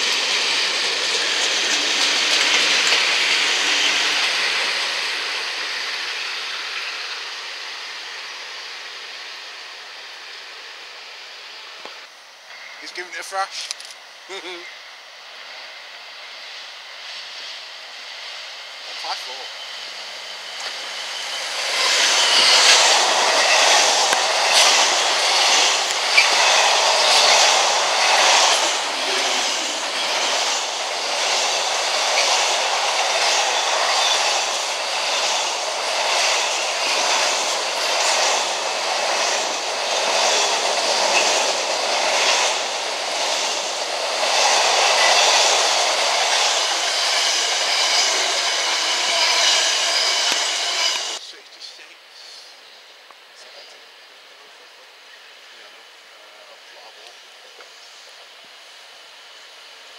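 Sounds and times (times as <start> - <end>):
diesel locomotive passing: 0.0 - 59.9.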